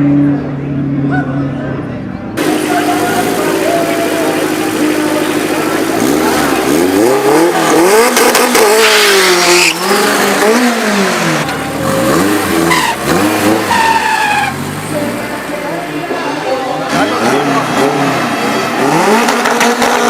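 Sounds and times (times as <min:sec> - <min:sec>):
drag-race car engine revving: 0:02.4 - 0:20.0
tyre squeal: 0:08.7 - 0:10.1, 0:11.8 - 0:15.0.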